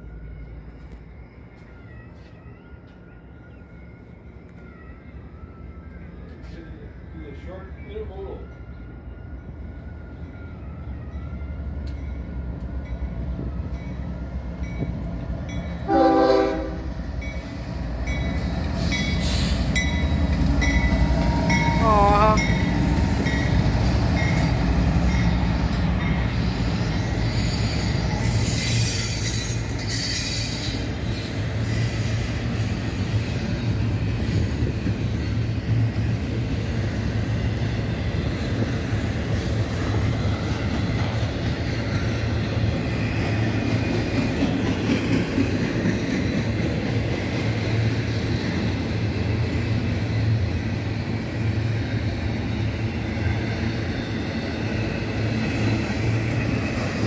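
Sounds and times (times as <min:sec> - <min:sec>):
diesel locomotive engine rumble: 0:00.0 - 0:57.0
train horn blast: 0:15.9 - 0:16.9.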